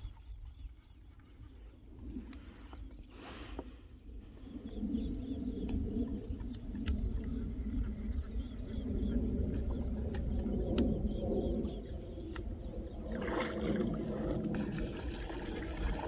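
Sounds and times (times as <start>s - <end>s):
small birds chirping: 0.0s - 14.0s
low rumble: 3.9s - 16.0s.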